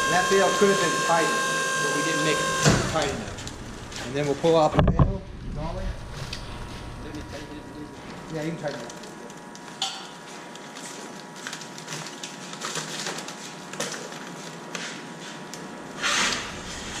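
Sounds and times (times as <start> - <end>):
plastic bottles crackling and crunching: 8.0 - 9.8, 10.4 - 14.7.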